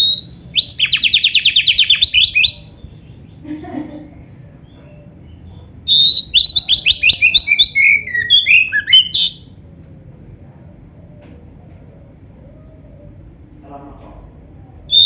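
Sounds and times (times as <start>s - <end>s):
bird singing rapid sharp notes: 0.0s - 2.9s, 5.3s - 9.4s.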